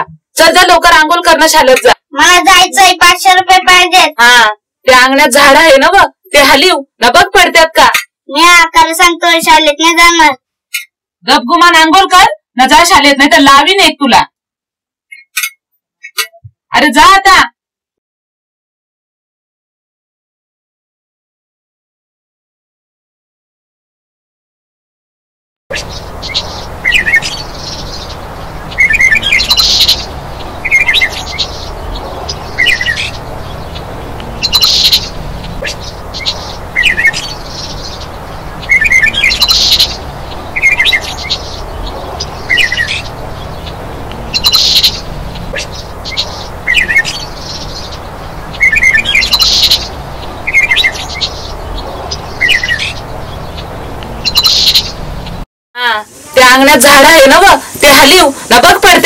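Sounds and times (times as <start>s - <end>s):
birds chirping: 25.7s - 55.4s, 56.3s - 59.0s
steady background hiss: 25.7s - 59.0s
steady background noise: 25.7s - 59.0s.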